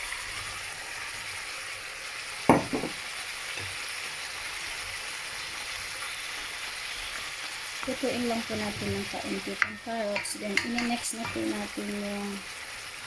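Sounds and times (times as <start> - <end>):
chicken sizzling in oil: 0.0 - 13.0
sharp knocks: 2.5 - 3.0.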